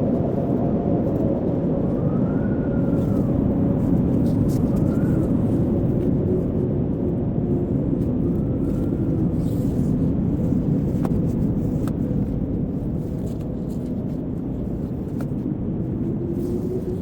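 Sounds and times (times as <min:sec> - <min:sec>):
blizzard wind howling: 0:00.0 - 0:17.0.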